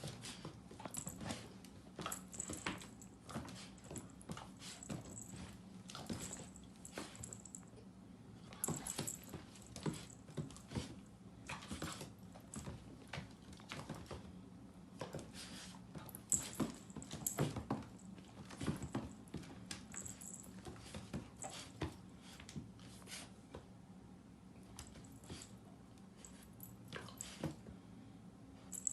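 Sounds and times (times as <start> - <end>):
paws and claws scraping floor: 0.0 - 7.6
steady low hum: 0.0 - 28.9.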